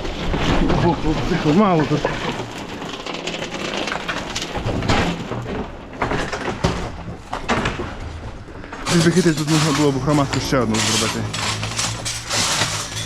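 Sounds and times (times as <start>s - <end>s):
hand tools knocking and clattering: 4.5s - 13.0s.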